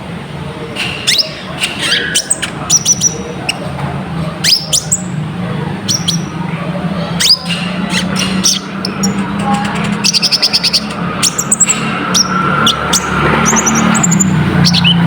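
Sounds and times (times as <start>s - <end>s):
bird high chirps: 1.0s - 5.2s, 5.8s - 15.0s.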